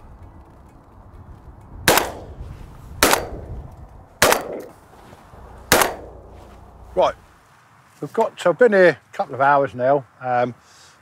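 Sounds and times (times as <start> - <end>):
shotgun shots with echo: 1.9 - 2.4, 3.0 - 3.5, 4.2 - 4.7, 5.7 - 6.3.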